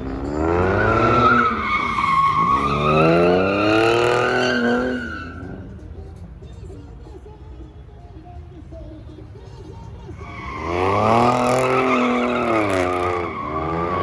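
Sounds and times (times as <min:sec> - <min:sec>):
car engine revving: 0:00.0 - 0:05.8, 0:10.1 - 0:14.0
tyres squealing: 0:00.4 - 0:05.8, 0:10.0 - 0:14.0.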